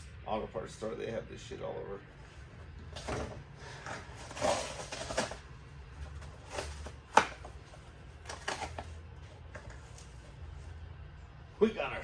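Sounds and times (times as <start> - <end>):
plastic bottles rustling: 2.2 - 10.4.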